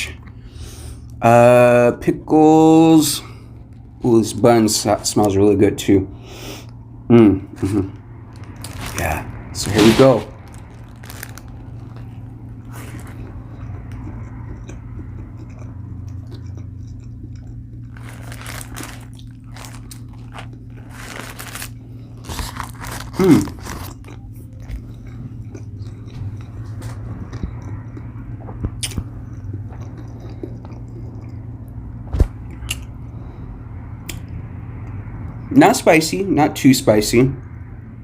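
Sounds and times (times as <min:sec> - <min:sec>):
crunching and chewing of fried food: 0:00.0 - 0:05.2, 0:06.5 - 0:36.0
steady low hum: 0:00.0 - 0:38.0
wet mouth noises: 0:09.7 - 0:18.2, 0:22.3 - 0:31.8
person humming mm: 0:23.1 - 0:23.6.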